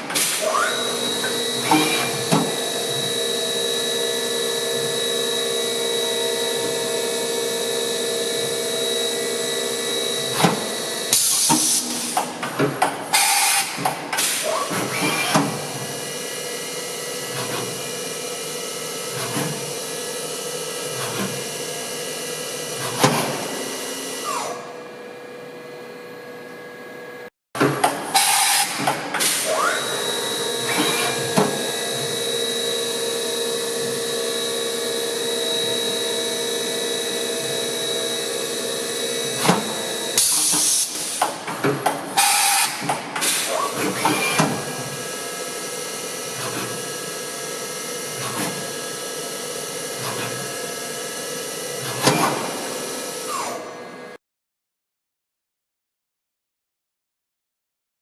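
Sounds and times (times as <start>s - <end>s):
machining center whine: 0.0s - 11.2s, 23.4s - 27.3s, 28.0s - 41.2s.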